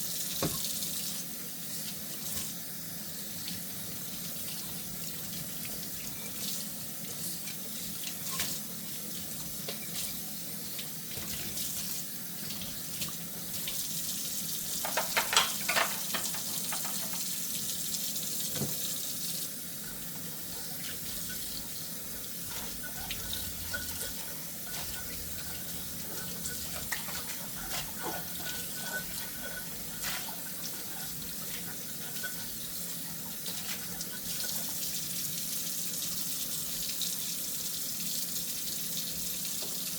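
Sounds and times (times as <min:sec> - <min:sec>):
tap running into sink: 0:00.4 - 0:00.8, 0:14.7 - 0:17.4, 0:18.4 - 0:19.0
dishes clinking and clattering: 0:05.6 - 0:06.6, 0:07.2 - 0:08.7, 0:09.6 - 0:10.2, 0:14.8 - 0:17.4, 0:19.8 - 0:34.8.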